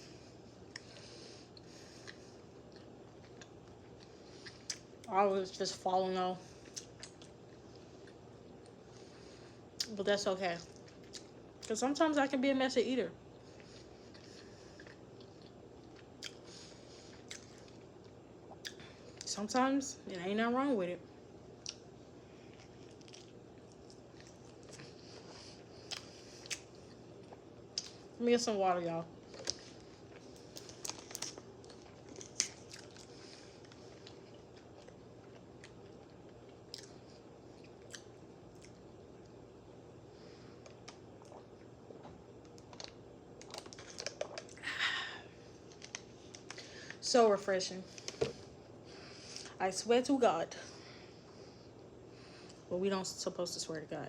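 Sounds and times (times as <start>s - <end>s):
chewing and mouth sounds: 0.6s - 5.2s, 6.5s - 9.2s, 9.8s - 11.8s, 13.4s - 19.3s, 21.6s - 28.1s, 29.2s - 39.4s, 40.6s - 44.6s, 45.5s - 47.0s.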